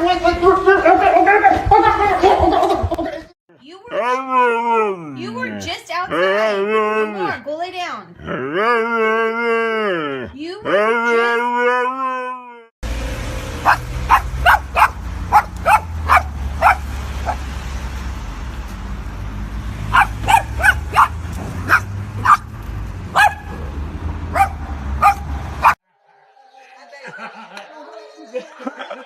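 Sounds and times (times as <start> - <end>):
dog barking: 13.6 - 17.4, 19.9 - 22.5, 23.1 - 23.7, 24.3 - 25.8.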